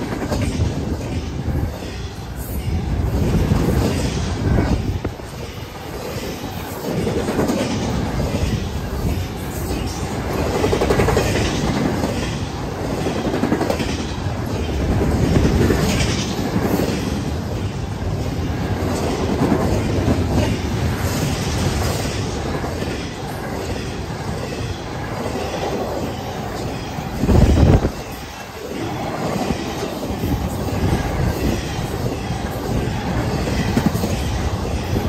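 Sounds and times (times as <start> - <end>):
freight train rumbling past: 0.0 - 35.0.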